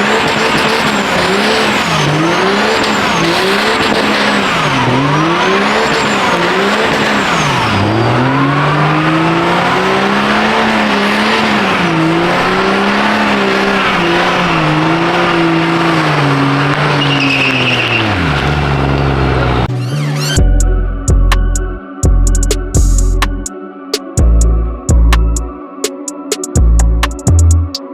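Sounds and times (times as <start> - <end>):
diesel truck engine revving: 0.0 - 23.5
tyre squeal: 16.8 - 18.8.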